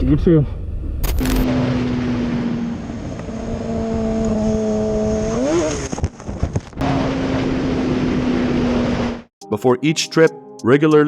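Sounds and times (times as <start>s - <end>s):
vehicle engine revving: 1.0s - 9.3s.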